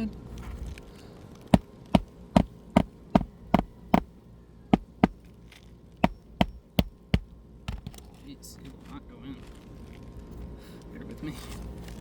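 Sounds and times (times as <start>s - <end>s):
hammer striking a nail: 2.0s - 4.1s, 4.8s - 5.2s, 6.0s - 7.3s.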